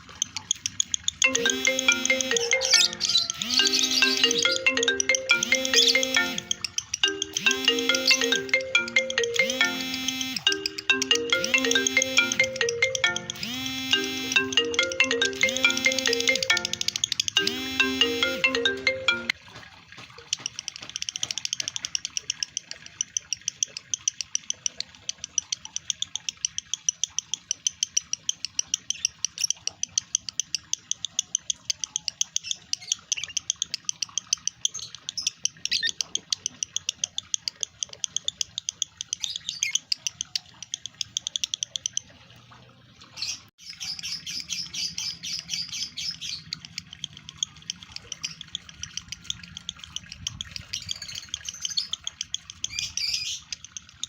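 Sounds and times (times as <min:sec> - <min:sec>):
lovebird chattering: 0:00.0 - 0:19.3, 0:43.2 - 0:54.0.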